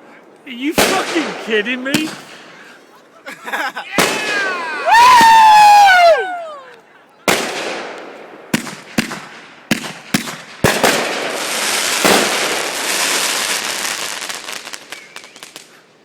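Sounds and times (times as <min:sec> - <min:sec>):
fireworks crackling: 0:00.0 - 0:16.0
fireworks banging: 0:00.4 - 0:05.8, 0:07.3 - 0:15.8.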